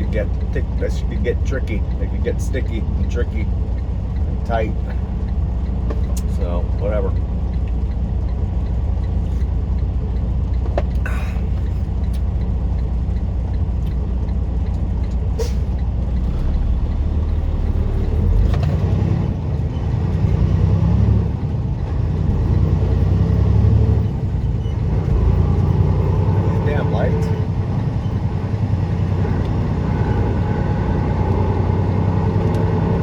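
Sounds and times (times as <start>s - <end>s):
truck diesel engine shifting gears: 0.0s - 33.0s.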